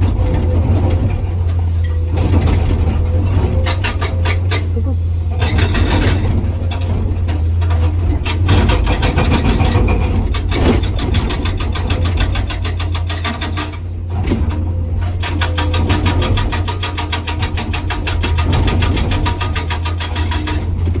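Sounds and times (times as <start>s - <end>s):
hydraulic breaker hammering rock: 10.5s - 11.2s.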